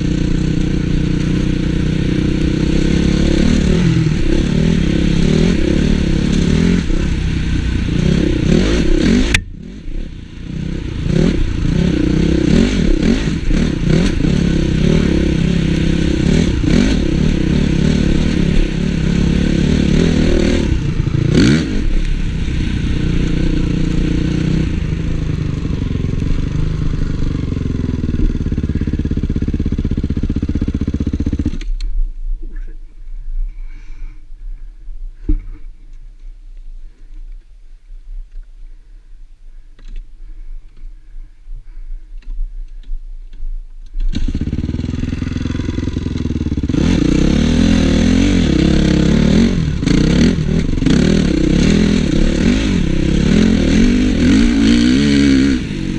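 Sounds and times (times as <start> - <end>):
motorbike engine revving: 0.0 - 31.8, 44.0 - 55.9.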